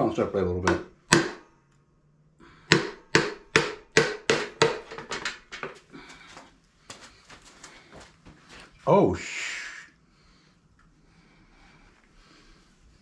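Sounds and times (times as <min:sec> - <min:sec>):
hammer striking metal engine casing: 0:02.7 - 0:05.6.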